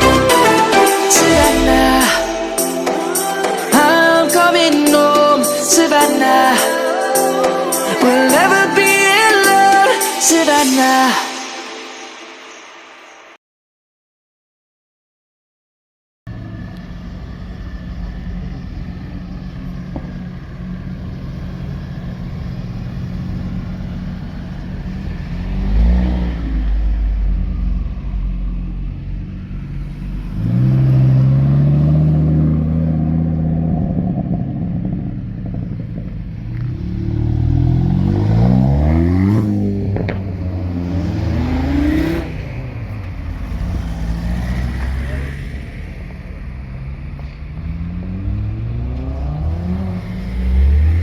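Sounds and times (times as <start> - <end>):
car engine idling and revving: 0.0 - 5.2, 16.3 - 51.0.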